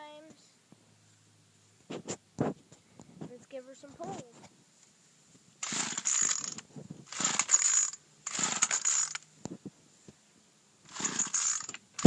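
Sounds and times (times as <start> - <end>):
recoil pull-starter whirring: 5.6 - 9.2, 10.9 - 12.0.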